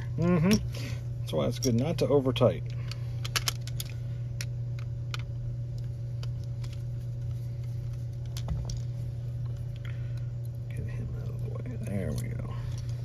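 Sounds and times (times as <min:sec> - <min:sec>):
steady low hum: 0:00.0 - 0:13.0
small parts clicking and tapping: 0:02.7 - 0:10.6, 0:11.2 - 0:13.0.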